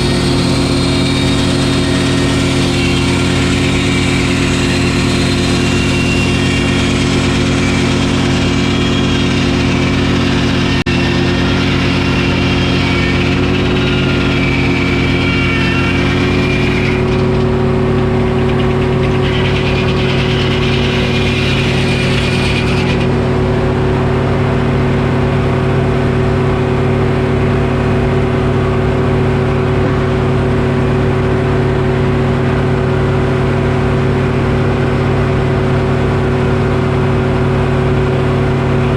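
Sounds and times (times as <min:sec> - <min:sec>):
saw cutting wood hiss: 0:00.0 - 0:23.2
diesel engine running: 0:00.0 - 0:38.9.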